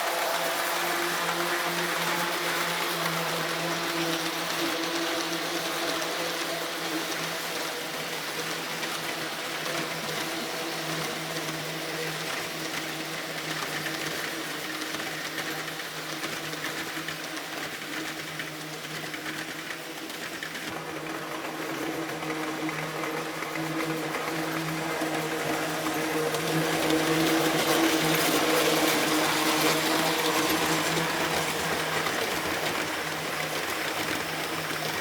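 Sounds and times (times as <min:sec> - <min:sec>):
model train motors whining: 0:14.9 - 0:35.0.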